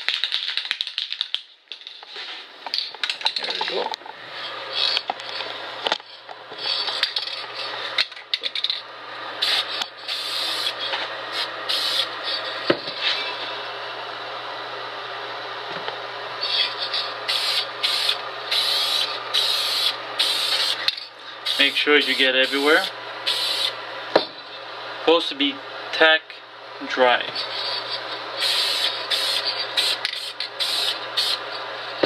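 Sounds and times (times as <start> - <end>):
aerosol spray can hissing: 9.4 - 12.1, 17.0 - 20.8, 21.5 - 23.8, 28.4 - 31.4.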